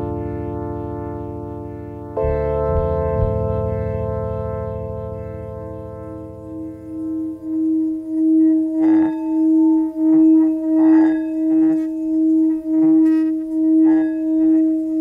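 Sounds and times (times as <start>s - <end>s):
singing bowl rubbed with mallet: 6.5s - 15.0s.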